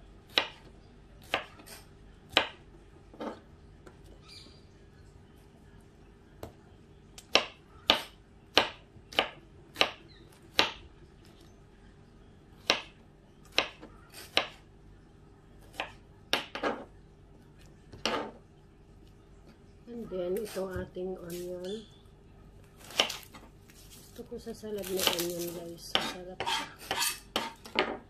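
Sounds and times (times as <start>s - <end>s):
knife cutting tomato: 0.3s - 2.6s, 24.8s - 27.8s.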